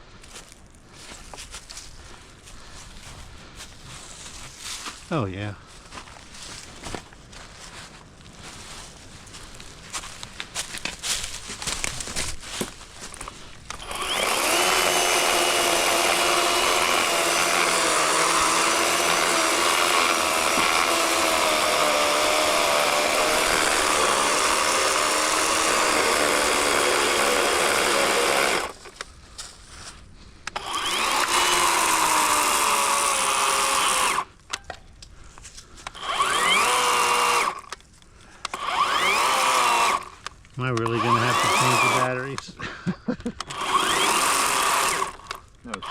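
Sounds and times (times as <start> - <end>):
electric chainsaw cutting log: 13.7 - 29.0, 30.5 - 34.4, 35.8 - 37.8, 38.4 - 42.5, 43.4 - 45.9.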